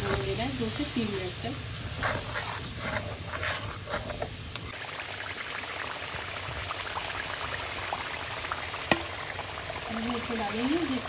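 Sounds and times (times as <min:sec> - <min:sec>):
steel spoon scraping a pan: 0:00.0 - 0:04.7
sauce sizzling in hot oil: 0:00.0 - 0:11.0.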